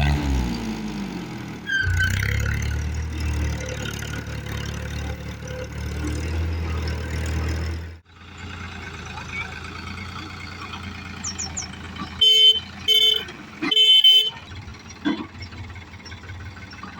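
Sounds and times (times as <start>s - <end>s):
tractor diesel engine running: 0.0s - 16.9s
quieter engine sound: 1.9s - 16.9s.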